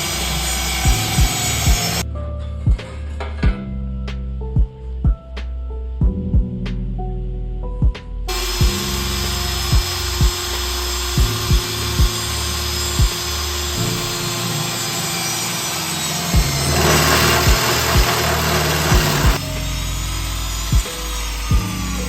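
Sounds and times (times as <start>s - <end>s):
power tool cutting metal: 0.0s - 2.0s, 8.3s - 22.0s
background music with beat: 0.8s - 2.0s, 2.6s - 7.0s, 7.6s - 9.0s, 9.6s - 14.1s, 16.4s - 22.0s.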